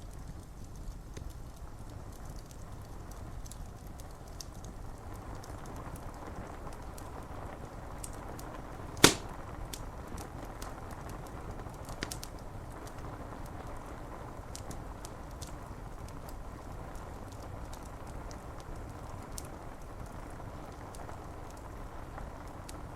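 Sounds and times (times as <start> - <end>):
wood fire crackling: 0.0 - 22.9
loud sharp pop: 9.0 - 9.4
rain on window glass: 10.0 - 22.9.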